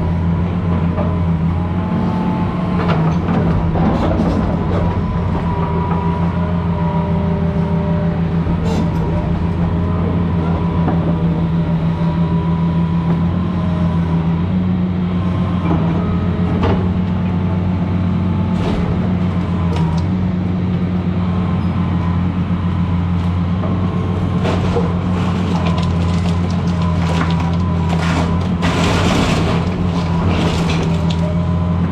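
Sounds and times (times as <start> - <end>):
excavator diesel engine running: 0.0 - 31.9
debris knocks and cracks: 24.3 - 31.8.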